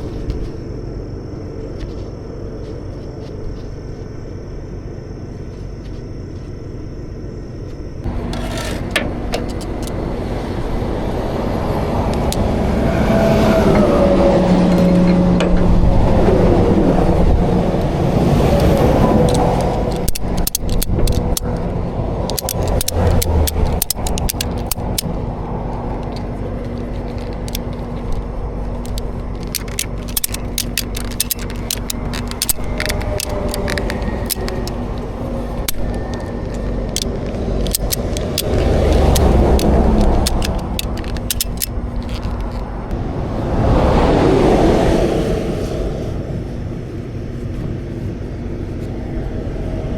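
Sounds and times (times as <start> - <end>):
highway traffic hum: 0.0 - 49.9
metal strap hardware rattling: 8.2 - 10.0, 18.6 - 42.7
vehicle passing by: 9.8 - 20.1, 32.4 - 49.9.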